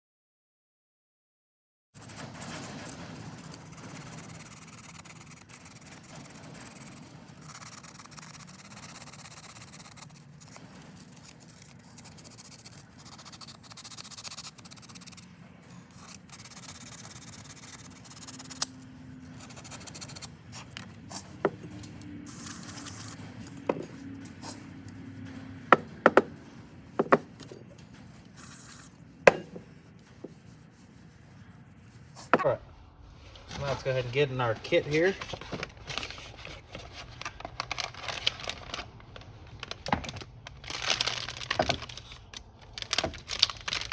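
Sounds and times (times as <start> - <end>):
sandpaper rubbing metal: 2.0 - 18.6.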